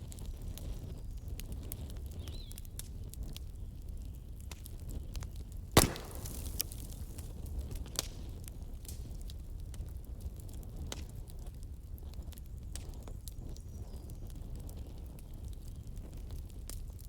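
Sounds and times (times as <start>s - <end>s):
wood fire crackling: 0.1s - 17.0s
sharp loud fire snap: 5.8s - 7.3s.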